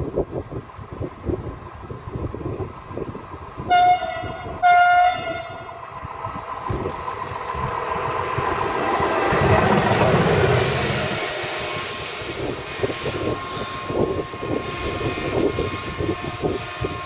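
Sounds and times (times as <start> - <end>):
approaching train rumble: 0.0 - 17.0
train horn blasts: 3.7 - 5.8.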